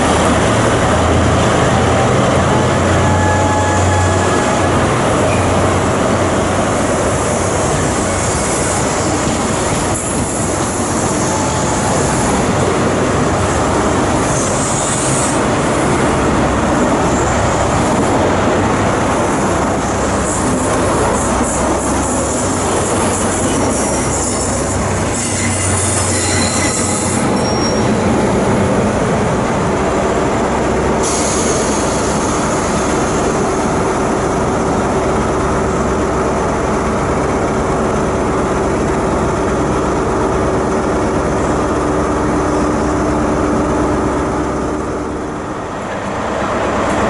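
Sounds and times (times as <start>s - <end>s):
train rumbling along tracks: 0.0s - 47.0s.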